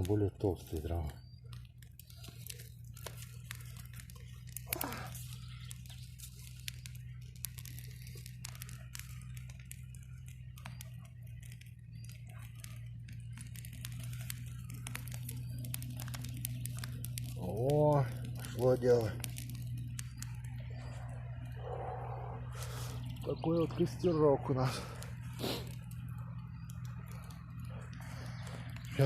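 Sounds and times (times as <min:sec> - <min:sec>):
steady low hum: 0:00.0 - 0:29.0
twigs crackling in campfire: 0:00.0 - 0:29.0.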